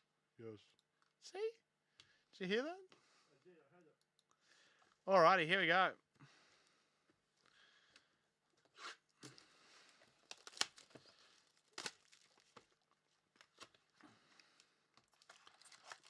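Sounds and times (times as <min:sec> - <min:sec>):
sharp crackles of wrapping: 0:08.7 - 0:16.0
packaging crinkling and tearing: 0:10.0 - 0:16.0.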